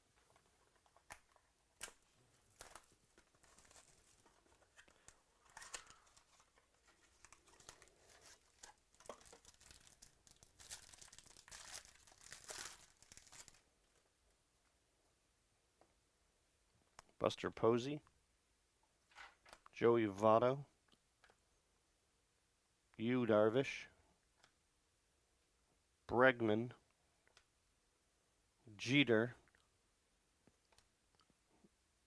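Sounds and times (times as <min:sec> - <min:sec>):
wrapper tearing and crinkling: 0:01.8 - 0:13.6.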